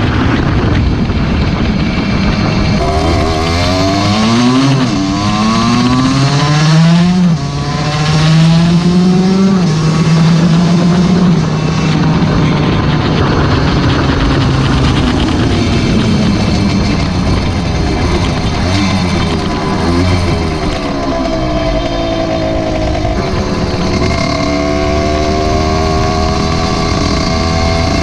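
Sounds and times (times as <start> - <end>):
motorcycle engine accelerating: 0.0 - 28.0
wind noise on microphone: 0.0 - 28.0.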